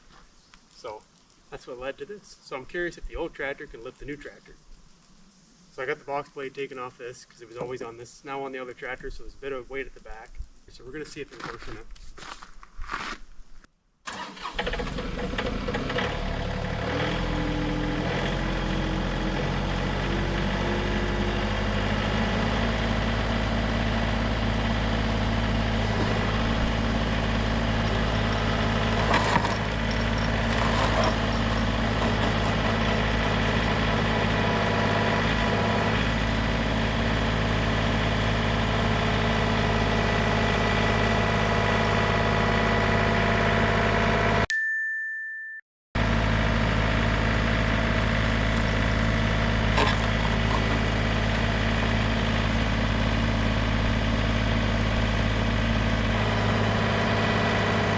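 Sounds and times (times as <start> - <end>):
tractor diesel engine running: 14.1 - 44.5, 46.0 - 57.9.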